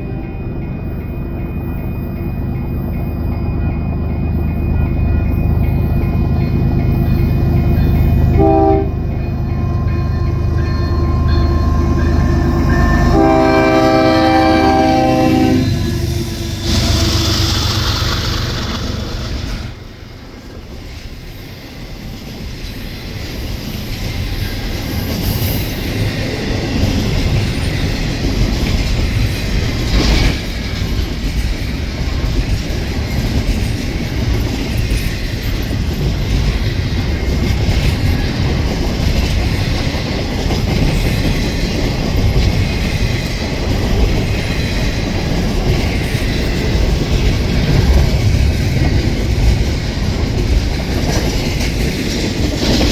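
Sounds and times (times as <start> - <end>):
freight train rumble: 0.0 - 52.9
train horn blast: 8.3 - 9.1, 10.0 - 17.8.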